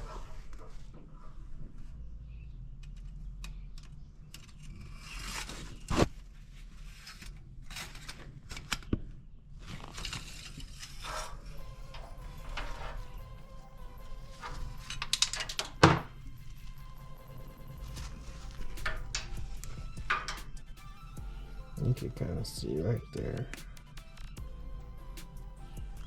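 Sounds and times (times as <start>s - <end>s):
low steady hum: 11.3s - 26.0s
clicks and knocks of parts: 17.9s - 20.8s.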